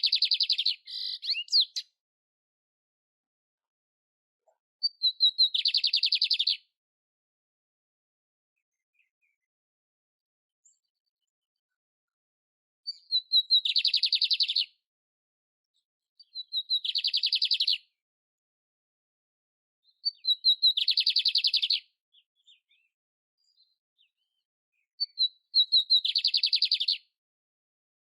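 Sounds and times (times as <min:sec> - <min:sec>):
canary singing trills: 0:00.0 - 0:02.0, 0:04.8 - 0:06.6, 0:12.9 - 0:14.7, 0:16.2 - 0:17.8, 0:19.9 - 0:22.9, 0:25.0 - 0:27.1.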